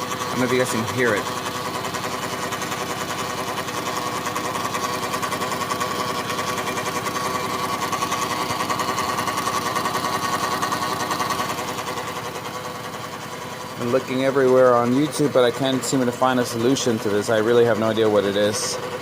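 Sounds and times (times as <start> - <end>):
engine ticking clatter: 0.0 - 19.0
steady engine whine: 0.0 - 19.0.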